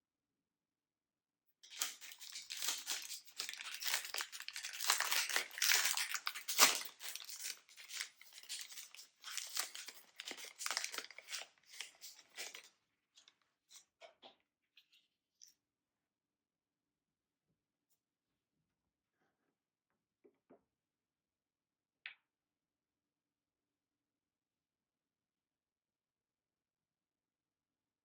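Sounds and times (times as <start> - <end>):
snack packaging crinkling: 1.6 - 12.7
packaging sharp crack: 1.7 - 12.7.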